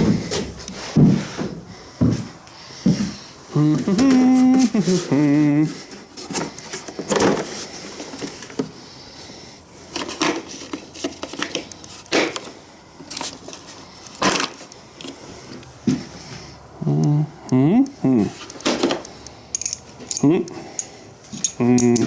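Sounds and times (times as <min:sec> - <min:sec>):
metal tools clinking: 0:19.4 - 0:22.0.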